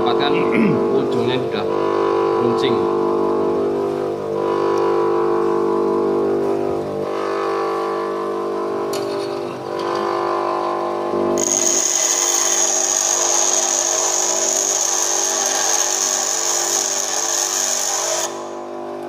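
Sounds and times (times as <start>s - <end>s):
bench grinder motor hum: 0.0s - 19.0s
high steady whine: 0.0s - 19.0s.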